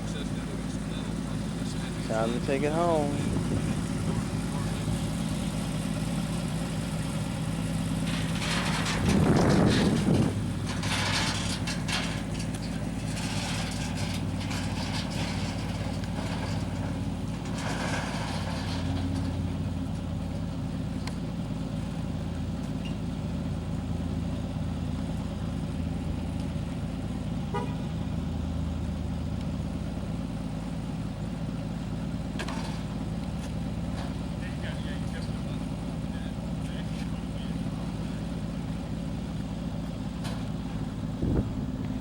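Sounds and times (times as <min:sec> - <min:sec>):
car engine idling: 0:00.0 - 0:42.0
faint rattle: 0:07.0 - 0:20.2.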